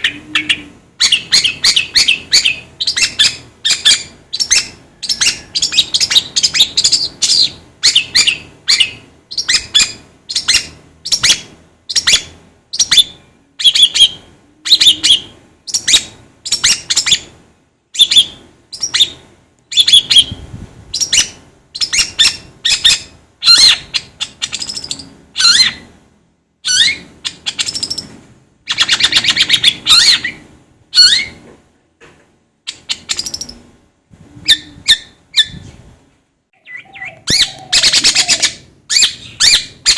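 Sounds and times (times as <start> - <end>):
bird chattering: 36.6 - 39.9.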